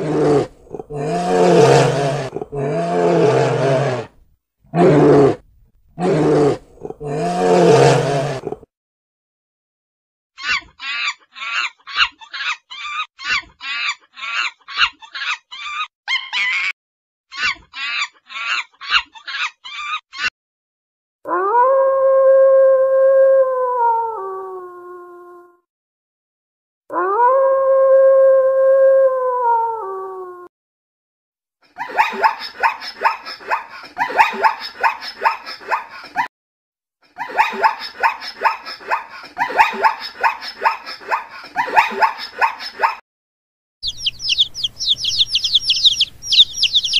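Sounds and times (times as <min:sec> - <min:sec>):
bears growling: 0:00.0 - 0:08.7
wolf howling: 0:21.3 - 0:25.4, 0:26.9 - 0:30.5
monkeys chattering: 0:43.8 - 0:46.9.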